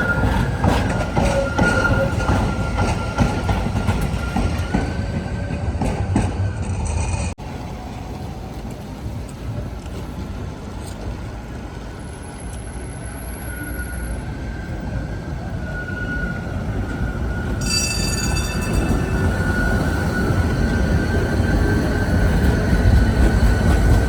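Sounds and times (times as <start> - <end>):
wheel squeal: 0.0 - 7.3, 12.3 - 24.0
tram rumbling past: 0.0 - 24.0.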